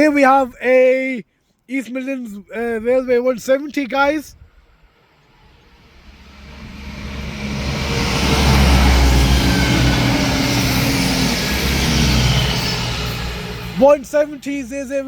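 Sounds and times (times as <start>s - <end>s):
rail rumble: 4.4s - 15.0s
diesel train engine: 4.6s - 15.0s.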